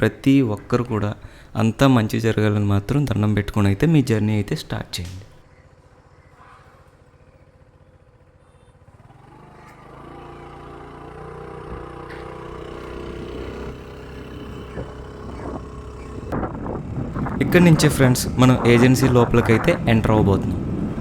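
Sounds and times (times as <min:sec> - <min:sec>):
vehicle engine running: 0:05.0 - 0:21.0.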